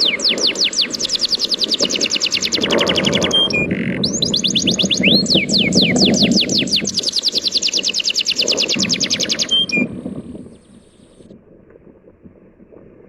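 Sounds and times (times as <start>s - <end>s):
sea surf washing: 0.0s - 11.3s
songbird trilling: 0.0s - 11.3s.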